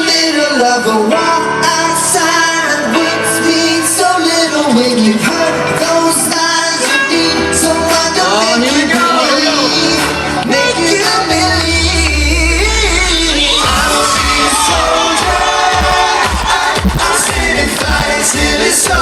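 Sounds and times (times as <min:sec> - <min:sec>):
live pop music with singing: 0:00.0 - 0:19.0
low bass line: 0:11.3 - 0:19.0.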